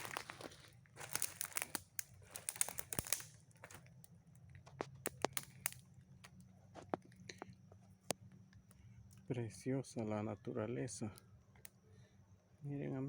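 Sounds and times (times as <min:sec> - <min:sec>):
footsteps crunching on dry leaves: 0:00.0 - 0:03.8.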